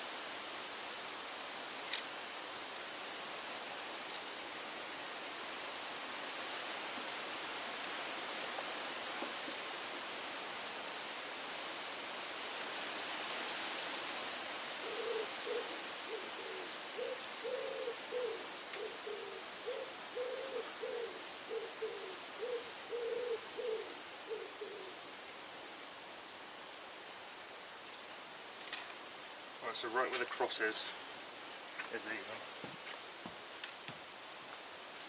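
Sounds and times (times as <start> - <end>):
steady outdoor hiss: 0.0 - 35.0
pigeon cooing: 14.8 - 25.1.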